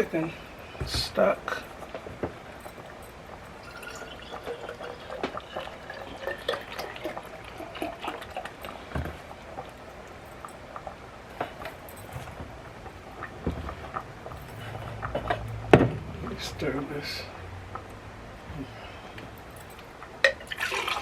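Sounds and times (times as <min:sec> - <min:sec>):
stock pouring into a pot: 0:03.6 - 0:08.8, 0:20.3 - 0:21.0
small knocks: 0:08.1 - 0:16.5.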